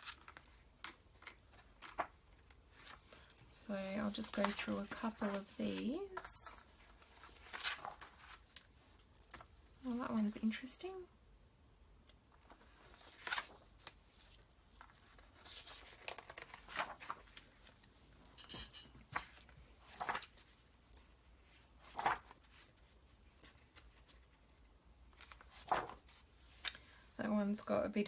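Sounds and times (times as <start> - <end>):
paper sheets rustling: 0.0 - 8.7, 12.5 - 18.1, 19.1 - 24.4, 25.1 - 26.7.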